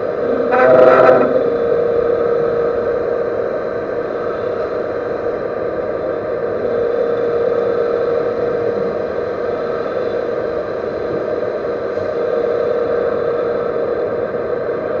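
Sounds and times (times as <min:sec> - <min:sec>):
metal lathe humming: 0:00.0 - 0:02.0
high whine: 0:00.0 - 0:04.9.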